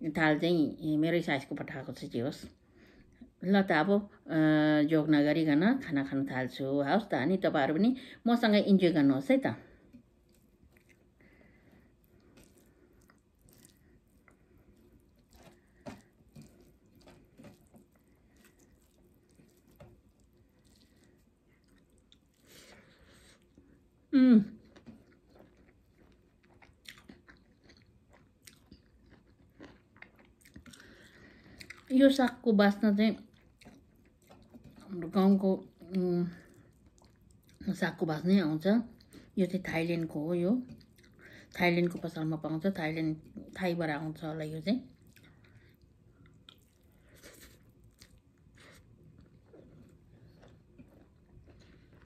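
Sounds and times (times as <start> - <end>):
person chewing: 9.9 - 31.9, 33.2 - 35.0, 35.7 - 37.6, 40.7 - 41.4, 45.0 - 52.0.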